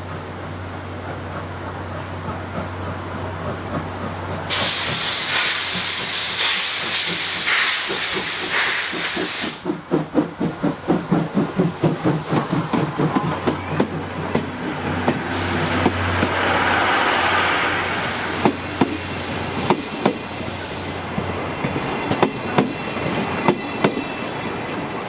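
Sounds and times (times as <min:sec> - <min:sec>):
steam locomotive chuffing: 0:00.0 - 0:25.0
loud steam hiss: 0:04.4 - 0:23.9.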